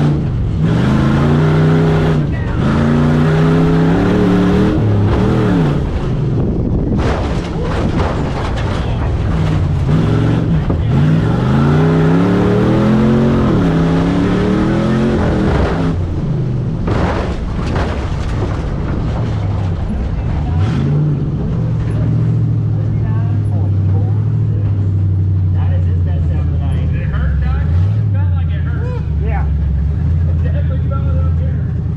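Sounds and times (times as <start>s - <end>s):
truck engine revving: 0.0s - 31.9s
clattering knocks: 6.8s - 10.0s, 16.8s - 20.5s.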